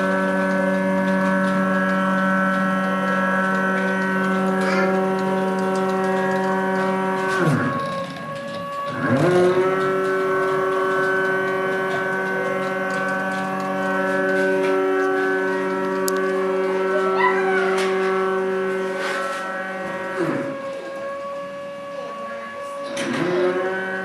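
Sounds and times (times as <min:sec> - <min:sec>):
machine drive motors whining: 0:00.0 - 0:24.0.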